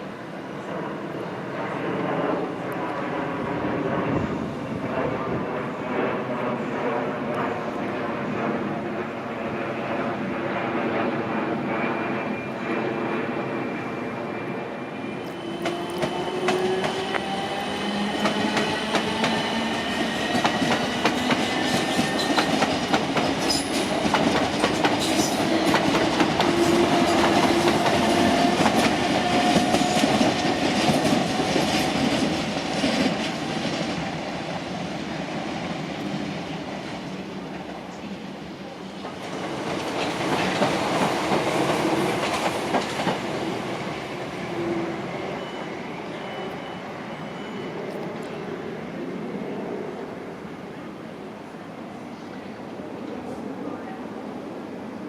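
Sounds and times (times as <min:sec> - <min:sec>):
train whine sliding in pitch: 0:11.1 - 0:37.9, 0:39.6 - 0:51.0.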